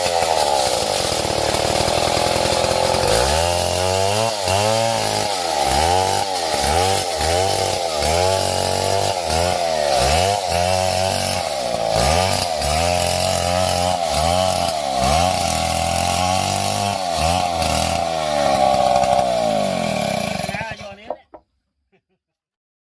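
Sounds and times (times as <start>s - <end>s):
chainsaw cutting wood: 0.0s - 21.2s.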